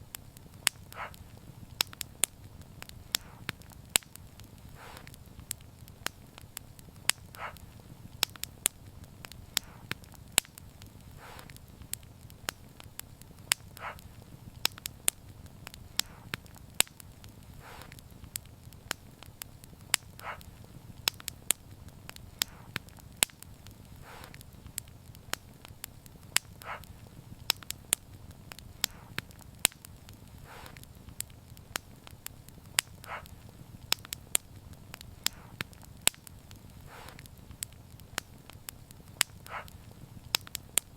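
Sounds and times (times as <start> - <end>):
low rumble of fire: 0.0 - 40.9
soft puffs: 0.0 - 40.9
wood fire crackling: 0.0 - 40.9.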